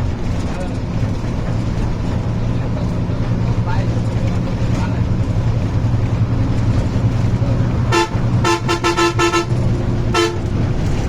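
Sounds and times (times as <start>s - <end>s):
vehicle engine and road noise: 0.0s - 11.0s
vehicle horn honking: 7.9s - 10.6s.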